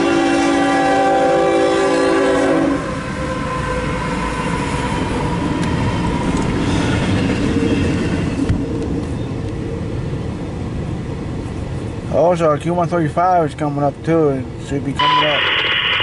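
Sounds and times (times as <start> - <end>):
locomotive air horn: 0.0 - 3.8, 15.0 - 16.0
train passing rumble: 0.0 - 16.0.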